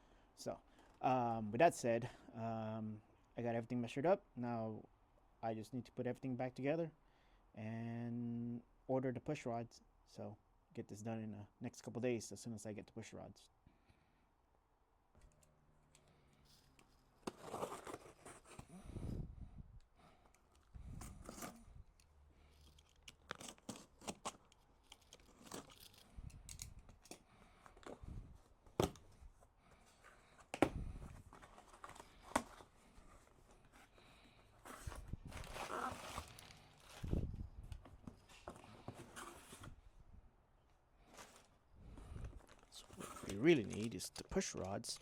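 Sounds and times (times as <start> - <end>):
packaging rustling and crinkling: 22.4 - 28.0, 31.1 - 39.8, 41.1 - 45.0.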